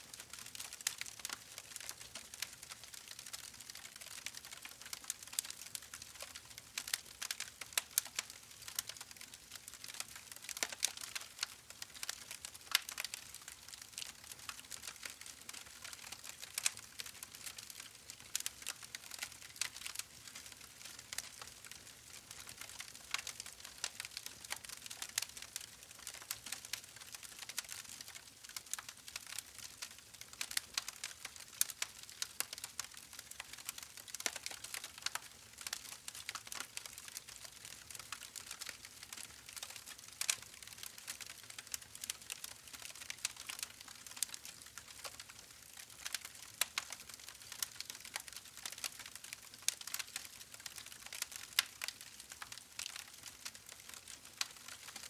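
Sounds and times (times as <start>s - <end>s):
wood fire crackling: 0.1s - 55.0s.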